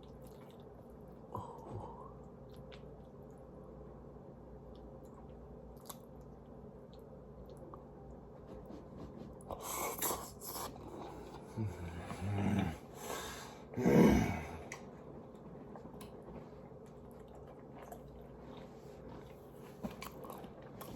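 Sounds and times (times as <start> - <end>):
person chewing food: 0.0 - 3.6, 4.6 - 8.1, 9.5 - 12.9, 14.4 - 20.9.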